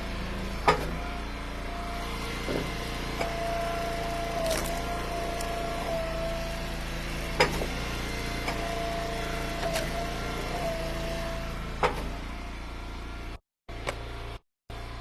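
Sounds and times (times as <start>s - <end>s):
log splitter engine whine: 0.0s - 15.0s
wood cracking as it splits: 4.3s - 5.8s.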